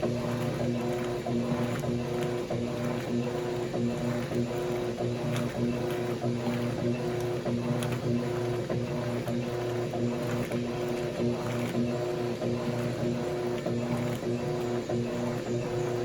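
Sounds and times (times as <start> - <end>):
washing machine motor hum: 0.0 - 16.0.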